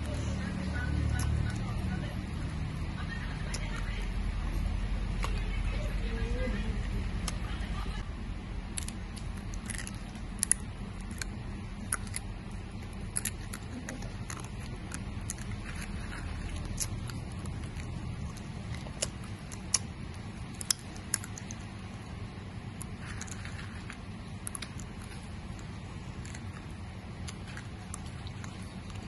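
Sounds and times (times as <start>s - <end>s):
steady low hum: 0.0s - 29.0s
wet mouth chewing clicks: 8.7s - 21.9s, 22.7s - 29.0s.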